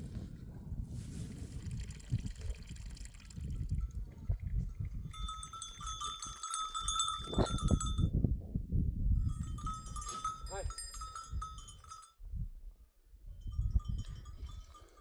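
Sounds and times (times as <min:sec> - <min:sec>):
animal bells clinking: 0:03.4 - 0:08.1, 0:09.2 - 0:12.2, 0:13.4 - 0:15.0
steady bell ringing: 0:05.1 - 0:08.1, 0:09.2 - 0:12.2, 0:13.4 - 0:15.0.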